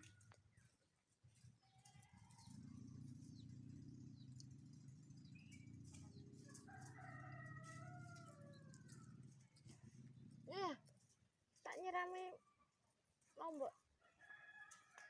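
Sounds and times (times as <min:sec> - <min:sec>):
rooster crowing faintly: 0:06.4 - 0:09.3.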